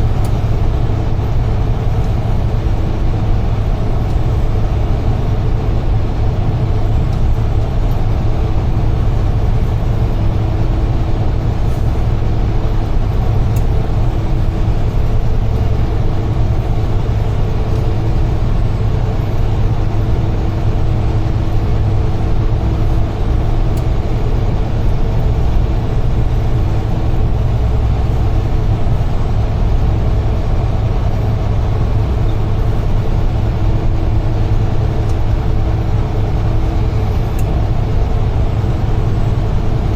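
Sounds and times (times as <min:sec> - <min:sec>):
truck engine and road drone: 0:00.0 - 0:39.9.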